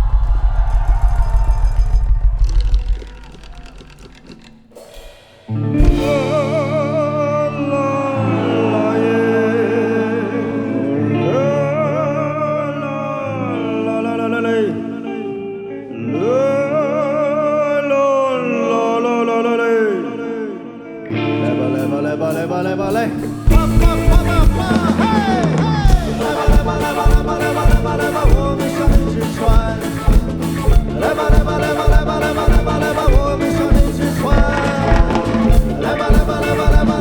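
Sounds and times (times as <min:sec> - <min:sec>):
rock band playing live: 0:02.5 - 0:12.3, 0:21.1 - 0:37.0.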